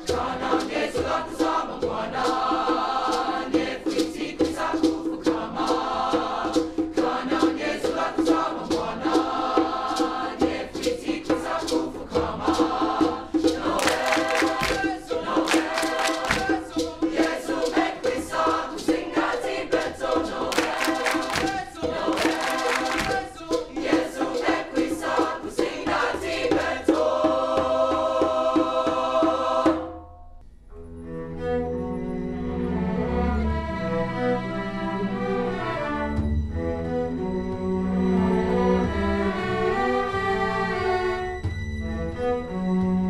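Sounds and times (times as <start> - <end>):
choir singing: 0.0 - 30.0, 31.1 - 36.2, 37.0 - 42.6
percussion beating rhythm: 0.0 - 30.7
string ensemble playing softly: 6.6 - 43.0.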